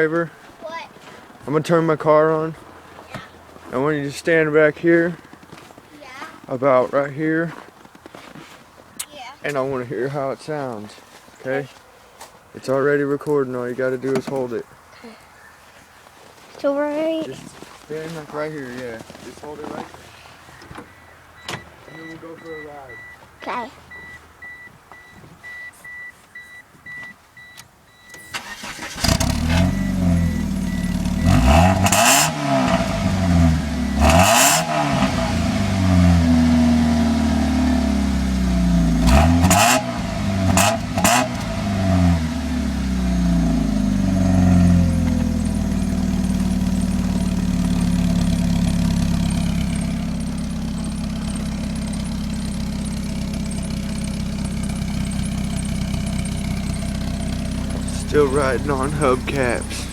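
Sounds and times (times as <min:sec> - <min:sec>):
repeated beep: 0:21.0 - 0:28.4, 0:29.4 - 0:35.5
car engine revving and idling: 0:28.4 - 0:59.9.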